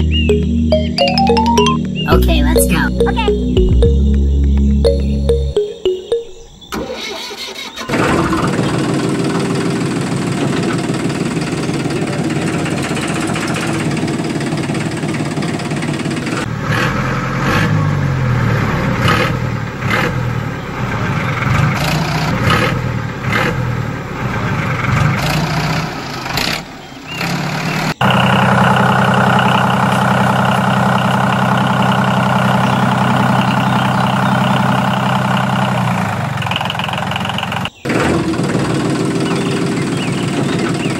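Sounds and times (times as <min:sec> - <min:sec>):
small engine running: 0:07.9 - 0:17.8, 0:27.2 - 0:40.9.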